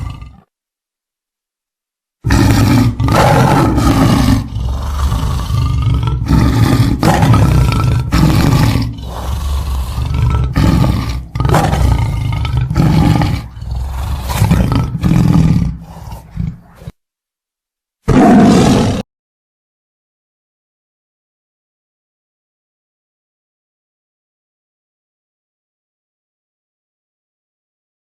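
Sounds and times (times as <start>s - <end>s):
big cat roaring and growling: 0.0s - 0.5s, 2.2s - 17.0s, 18.1s - 19.0s.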